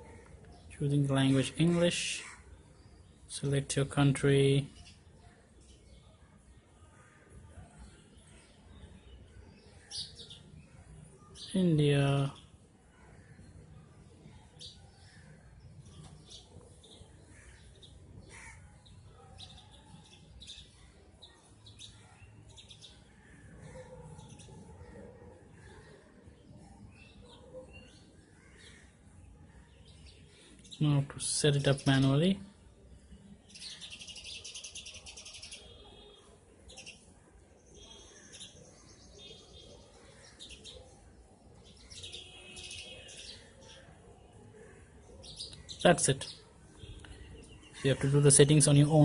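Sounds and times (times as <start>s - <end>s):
faint bird chirps: 32.9s - 49.0s.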